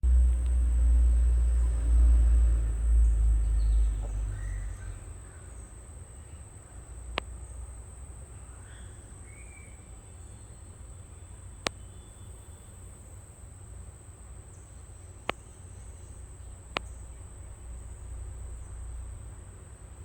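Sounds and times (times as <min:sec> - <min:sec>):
low rumble: 0:00.0 - 0:05.2
faint chirps: 0:00.2 - 0:13.4.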